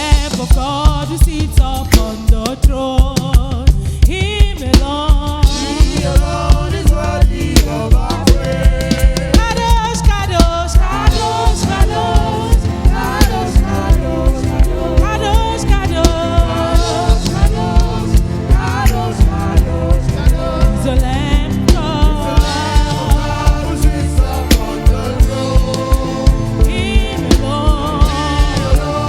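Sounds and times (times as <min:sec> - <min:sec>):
band with steady drum beat: 0:00.0 - 0:29.0
voices singing: 0:00.0 - 0:29.0.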